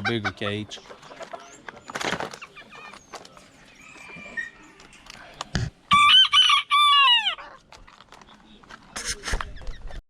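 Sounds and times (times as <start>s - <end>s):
rooster crowing: 5.9s - 7.4s.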